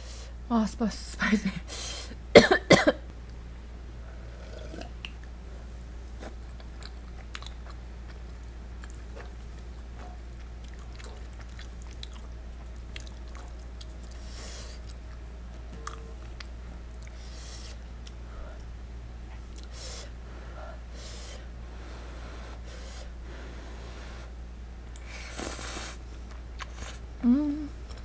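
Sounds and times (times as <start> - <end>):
air conditioner hum: 0.0 - 28.0
chewing soft pasta: 6.0 - 19.9, 24.9 - 27.1.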